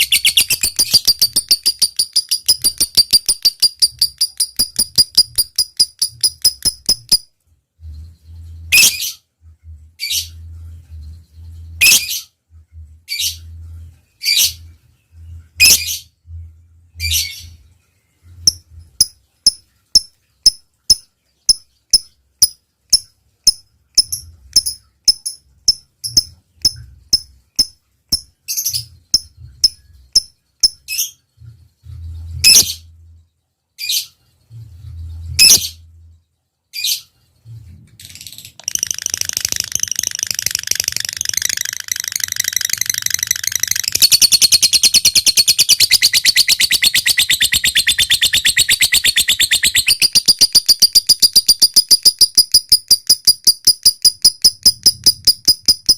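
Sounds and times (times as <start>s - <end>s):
lovebird chattering trill: 0.0s - 7.3s, 18.5s - 31.1s, 38.6s - 55.9s.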